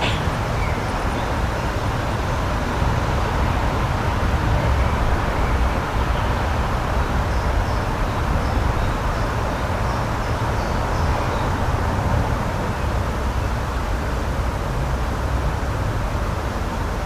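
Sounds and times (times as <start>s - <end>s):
loud outdoor rushing noise: 0.0s - 6.8s.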